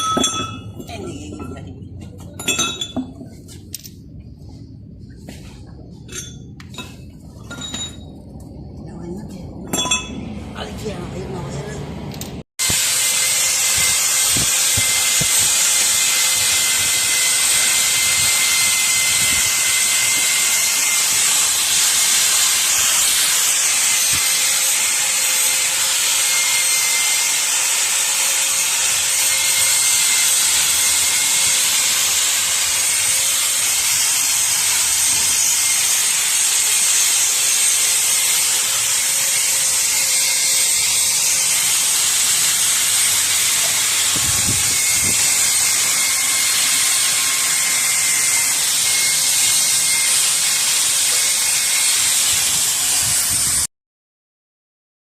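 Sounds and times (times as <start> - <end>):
pressurised jet hissing: 12.6 - 35.2, 40.8 - 53.5.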